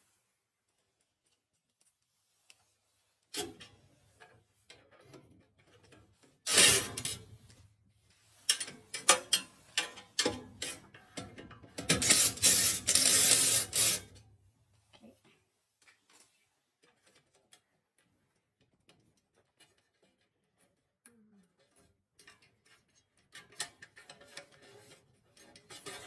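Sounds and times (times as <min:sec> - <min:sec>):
hand tools clicking and rattling: 0:08.5 - 0:14.1.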